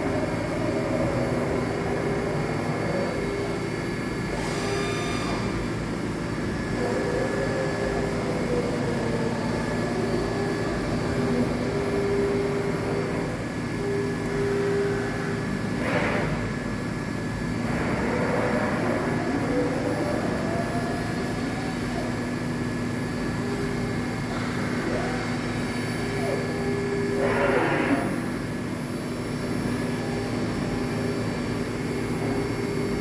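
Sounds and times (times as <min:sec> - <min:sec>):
milling machine hum and whine: 0:00.0 - 0:33.0.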